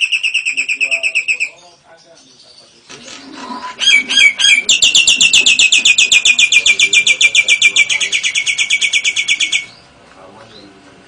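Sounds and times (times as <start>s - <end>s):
bird trilling high chirps: 0.0s - 1.8s, 3.7s - 9.9s.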